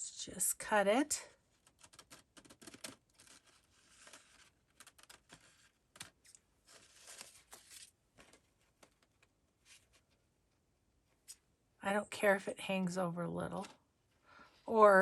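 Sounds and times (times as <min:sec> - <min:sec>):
paper handling clicks and taps: 0:01.6 - 0:09.3.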